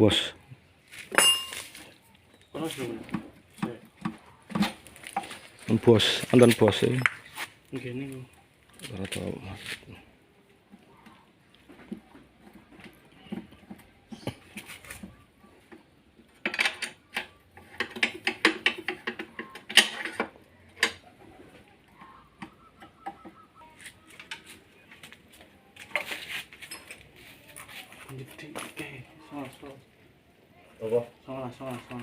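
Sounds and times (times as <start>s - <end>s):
metal clanks of hand tools: 1.1s - 1.7s, 16.4s - 21.0s.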